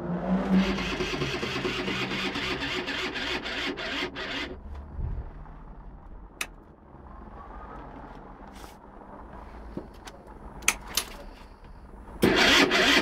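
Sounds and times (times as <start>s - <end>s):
two-stroke engine cranking: 0.5s - 4.6s, 12.2s - 13.0s.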